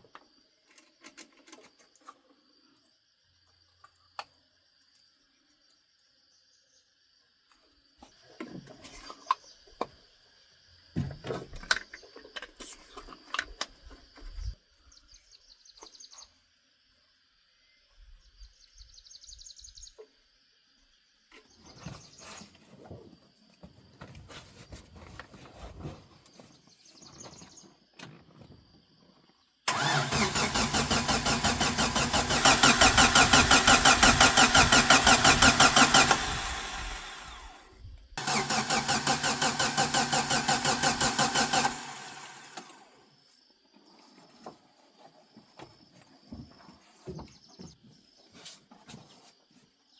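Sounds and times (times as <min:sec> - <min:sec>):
car engine starting: 0:29.7 - 0:37.6, 0:38.2 - 0:42.9.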